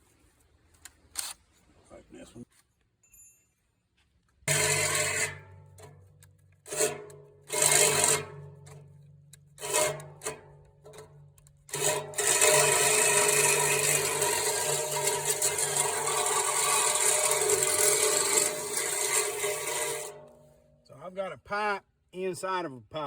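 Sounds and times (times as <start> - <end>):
electric drill boring through steel: 4.5 - 5.4, 7.5 - 8.3, 11.7 - 20.2.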